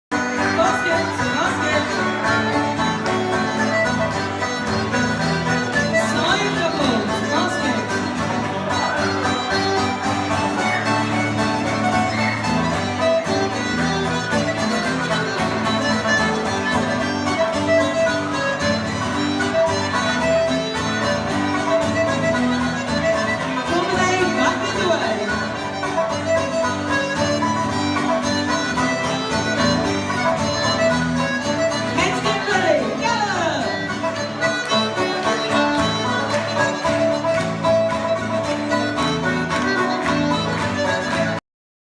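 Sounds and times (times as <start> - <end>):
fiddle melody: 0.1 - 41.4
folk dance band playing: 0.1 - 41.4
guitar accompaniment: 0.1 - 41.4.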